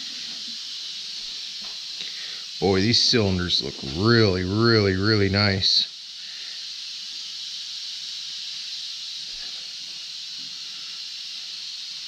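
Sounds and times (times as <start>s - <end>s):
high-pitched hiss: 0.0s - 12.0s.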